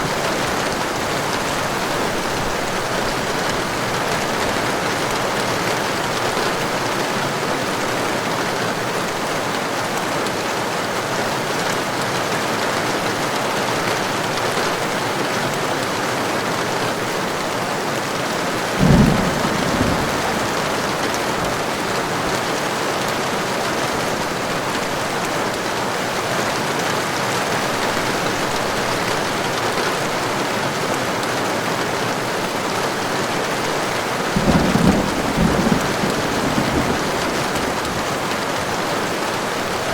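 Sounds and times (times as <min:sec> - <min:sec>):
heavy rain falling: 0:00.0 - 0:39.9
thunder clap: 0:18.7 - 0:22.4, 0:34.3 - 0:38.3.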